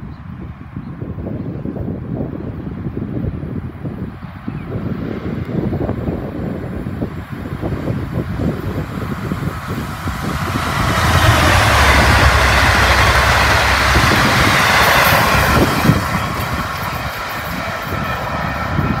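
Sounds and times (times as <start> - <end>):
train engine rumble: 5.9 - 19.0
train wheels rushing on rails: 6.6 - 19.0.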